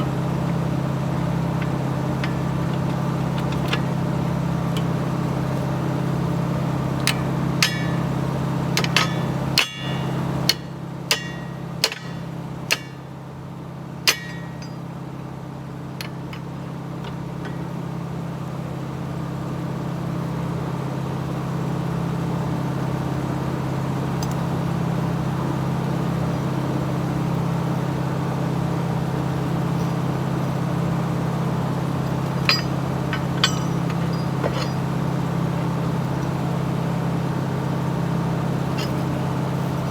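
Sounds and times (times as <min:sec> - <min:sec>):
sharp metal clanks: 0:00.0 - 0:04.0, 0:07.0 - 0:08.2, 0:08.8 - 0:13.1, 0:14.0 - 0:14.9, 0:32.0 - 0:35.1, 0:38.8 - 0:39.2
excavator diesel engine: 0:00.0 - 0:19.2, 0:22.6 - 0:39.9.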